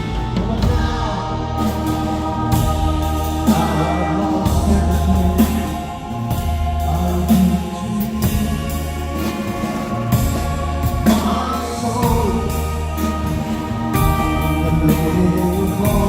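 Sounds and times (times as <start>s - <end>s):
bass notes: 0.0s - 16.0s
drums and cymbal crashes: 0.0s - 16.0s
keyboard chords: 0.0s - 16.0s.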